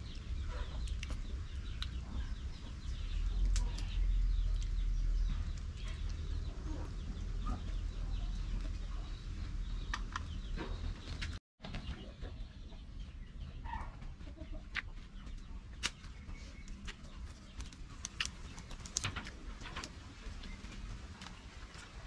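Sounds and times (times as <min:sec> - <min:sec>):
faint birds calling: 0:00.0 - 0:22.0
person chewing food: 0:00.1 - 0:02.3.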